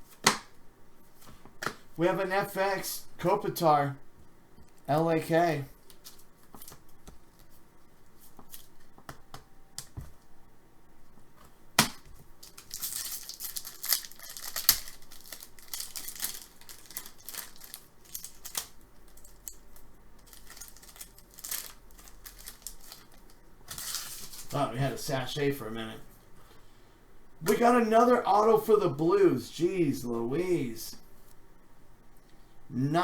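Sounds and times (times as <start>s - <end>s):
wrapper tearing and crinkling: 12.4s - 24.6s.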